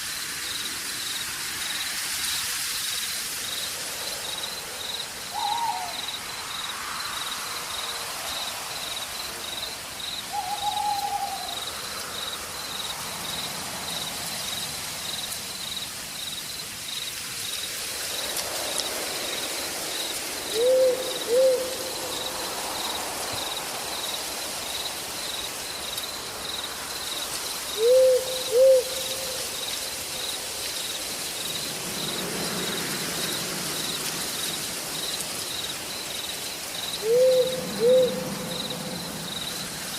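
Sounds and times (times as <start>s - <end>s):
crickets trilling: 0.0s - 39.9s
light hiss: 0.0s - 39.9s
owl hooting: 5.3s - 6.0s, 10.3s - 11.6s, 20.5s - 21.9s, 27.8s - 29.4s, 37.0s - 38.7s.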